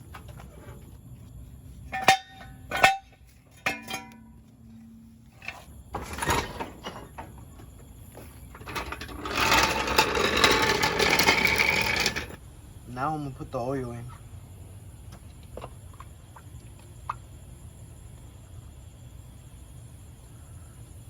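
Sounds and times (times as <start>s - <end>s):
metal clanks with ring: 1.9s - 5.6s
scraping and rattling: 5.3s - 7.2s, 8.4s - 12.4s.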